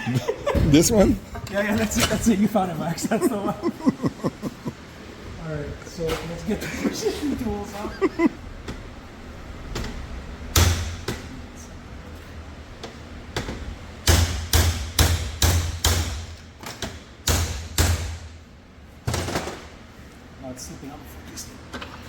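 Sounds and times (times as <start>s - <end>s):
hammer striking metal: 14.0s - 16.3s, 17.2s - 18.3s.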